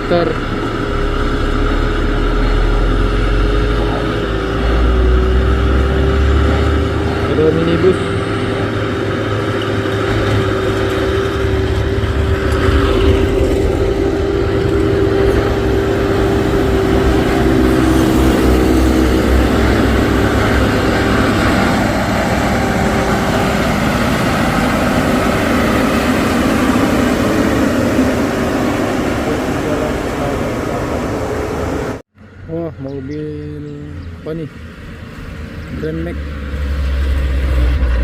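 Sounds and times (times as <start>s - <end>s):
second engine note: 0.0s - 34.6s
high whine: 0.0s - 38.0s
vehicle engines labouring uphill: 0.0s - 38.0s.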